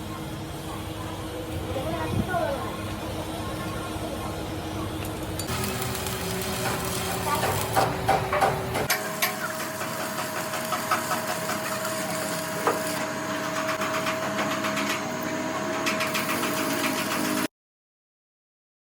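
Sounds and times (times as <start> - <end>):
machine high whine: 5.4 - 10.0.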